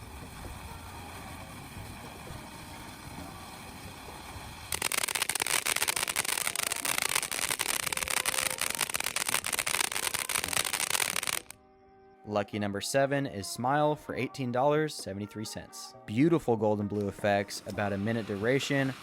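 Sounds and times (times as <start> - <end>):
firework fountain hissing and crackling: 0.0 - 11.5, 17.4 - 19.0.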